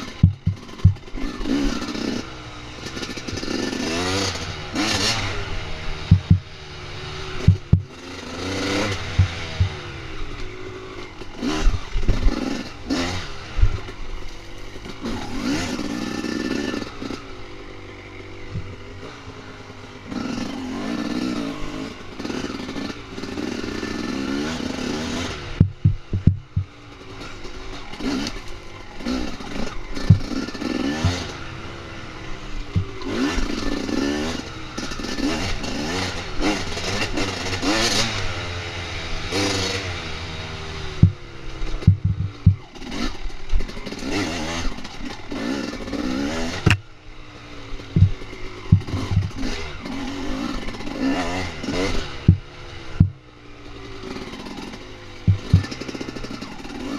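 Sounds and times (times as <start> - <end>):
dirt bike engine revving: 0.0 - 56.9
clatter and sharp knocks: 0.2 - 1.1, 6.1 - 6.5, 7.4 - 8.0, 9.0 - 9.8, 25.6 - 26.7, 30.1 - 30.4, 41.8 - 42.7, 48.0 - 49.4, 52.3 - 53.2, 55.3 - 55.9.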